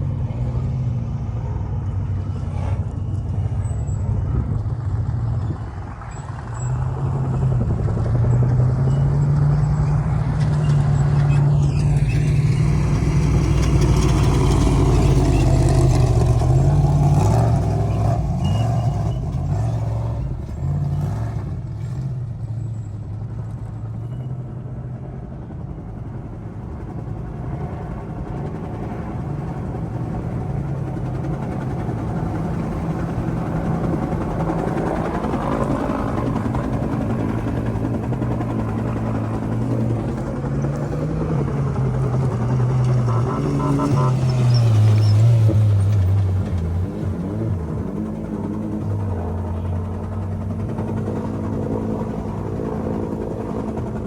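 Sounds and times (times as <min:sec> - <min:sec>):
heavy engine noise: 0:00.0 - 0:54.0.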